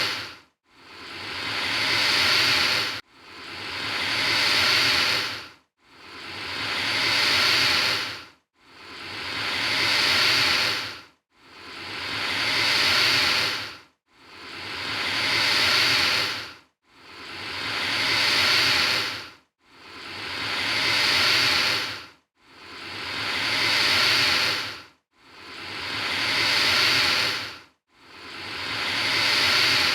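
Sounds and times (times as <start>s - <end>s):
alligator hissing: 0.0s - 0.3s, 0.9s - 3.0s, 3.6s - 5.4s, 6.1s - 8.2s, 8.8s - 10.9s, 11.7s - 13.7s, 14.4s - 16.4s, 17.2s - 19.2s, 19.9s - 22.0s, 22.7s - 24.8s, 25.4s - 27.5s, 28.2s - 29.9s.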